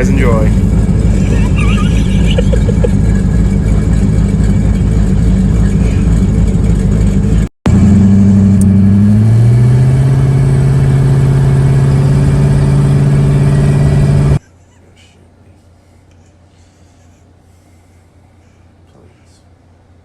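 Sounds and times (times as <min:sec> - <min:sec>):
drag car engine running loud: 0:00.0 - 0:14.4.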